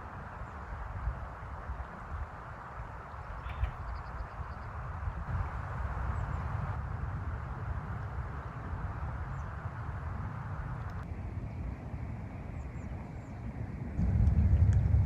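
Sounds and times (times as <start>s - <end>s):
wind rumbling on microphone: 0.0s - 15.0s
faint bird chirps: 3.1s - 4.8s
steady rushing noise: 13.3s - 15.0s.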